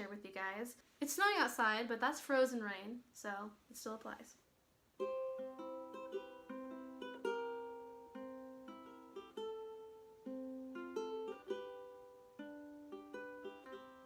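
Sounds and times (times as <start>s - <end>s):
ukulele fingerpicked: 4.9s - 14.0s.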